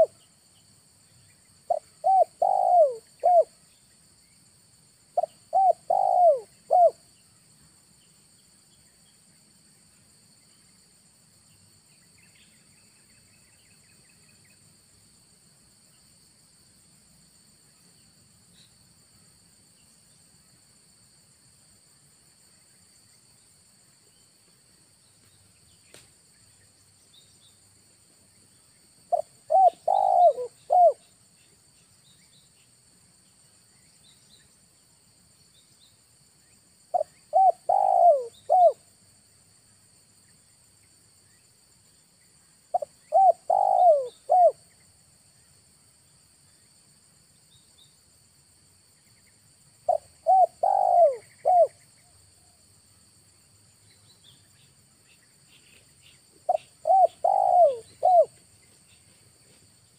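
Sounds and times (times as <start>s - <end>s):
dove cooing: 1.7s - 3.5s, 5.2s - 7.0s, 29.1s - 31.0s, 36.9s - 38.8s, 42.7s - 44.6s, 49.9s - 51.8s, 56.5s - 58.4s.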